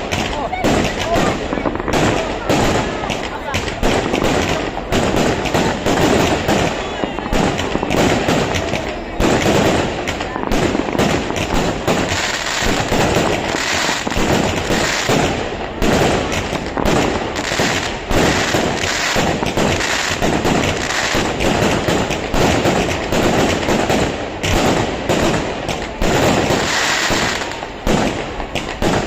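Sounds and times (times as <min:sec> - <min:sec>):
fireworks bangs and crackling: 0:00.0 - 0:29.0.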